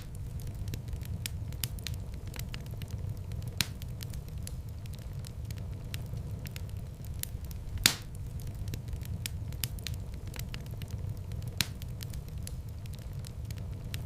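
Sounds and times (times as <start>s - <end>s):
loud fire pops: 0.0s - 14.0s
wood fire crackling: 0.0s - 14.0s.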